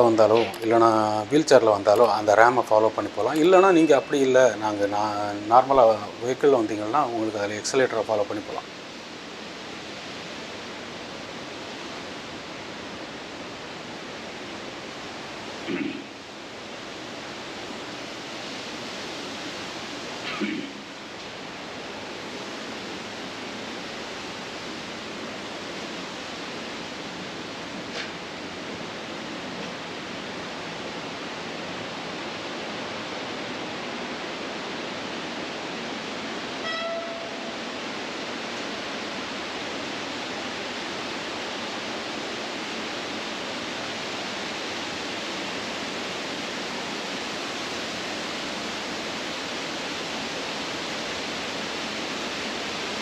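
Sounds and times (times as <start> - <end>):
waterfall rushing: 0.0 - 53.0
short pitched beep: 36.6 - 37.5.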